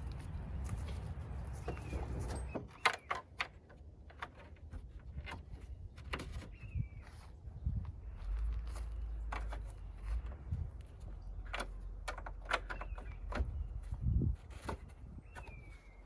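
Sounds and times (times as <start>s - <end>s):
sharp clicks and knocks: 9.2s - 10.4s, 11.0s - 13.9s.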